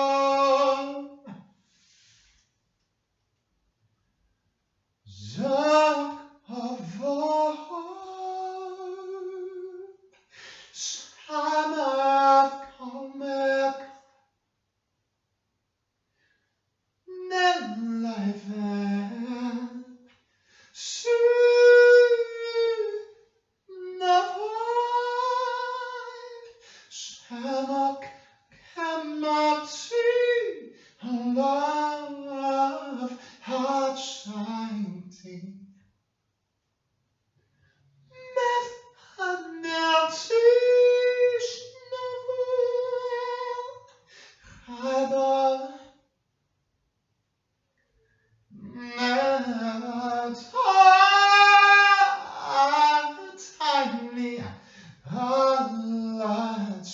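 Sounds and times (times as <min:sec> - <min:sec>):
person singing slow melody: 0:00.0 - 0:02.3, 0:05.1 - 0:14.0, 0:17.1 - 0:20.0, 0:20.6 - 0:35.6, 0:38.1 - 0:46.0, 0:48.5 - 0:56.9
quick breath: 0:10.2 - 0:10.8, 0:20.2 - 0:20.8, 0:44.0 - 0:44.7, 0:54.6 - 0:55.1.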